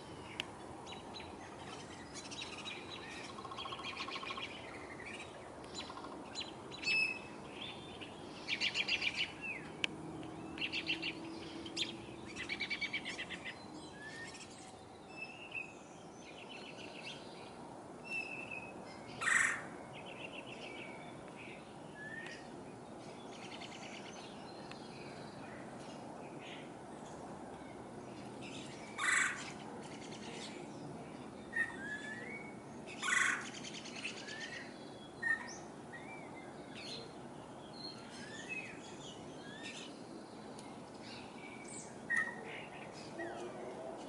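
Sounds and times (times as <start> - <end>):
woodpecker rattling calls: 2.9 - 4.6.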